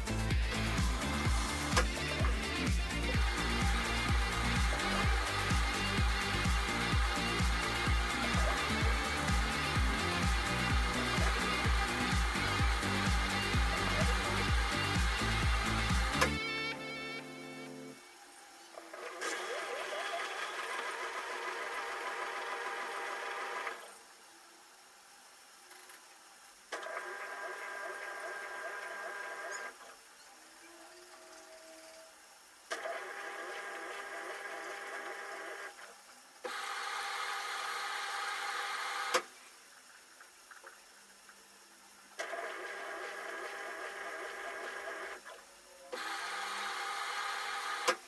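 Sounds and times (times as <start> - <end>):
washing machine running: 0.0 - 17.7, 18.4 - 24.0
quiet machine hum: 0.0 - 47.9.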